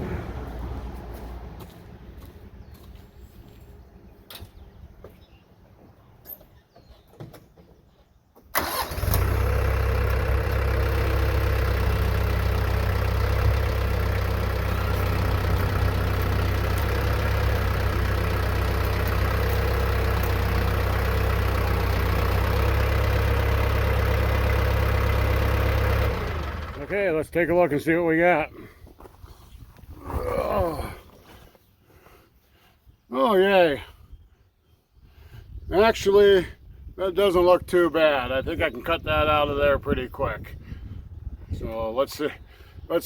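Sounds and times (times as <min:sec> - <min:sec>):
engine starting and running: 0:08.4 - 0:27.4.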